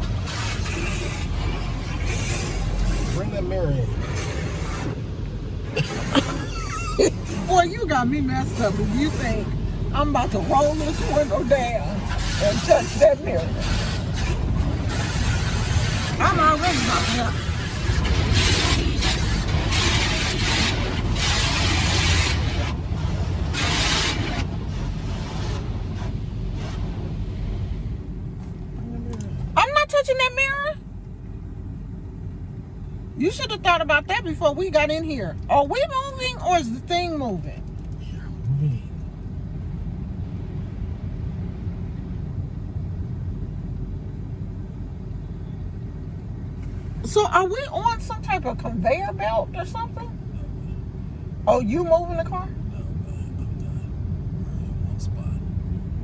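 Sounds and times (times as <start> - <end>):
water jets hissing on car: 0.0 - 28.7
low rumble of wash machinery: 0.0 - 56.0.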